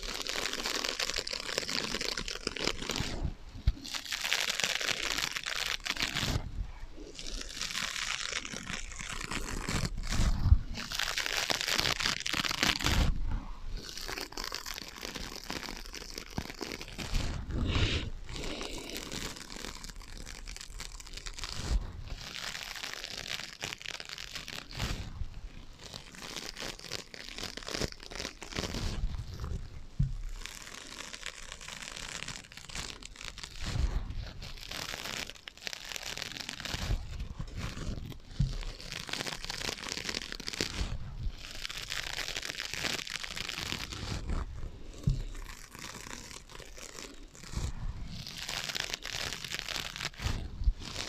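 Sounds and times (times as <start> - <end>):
scratching on sponges: 0.0 - 51.0.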